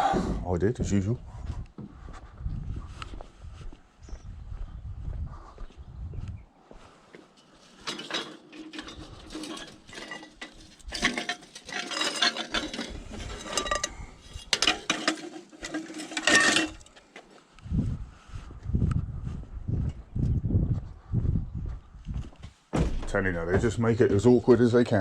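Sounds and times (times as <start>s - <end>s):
scrap metal clinking: 7.4s - 17.0s.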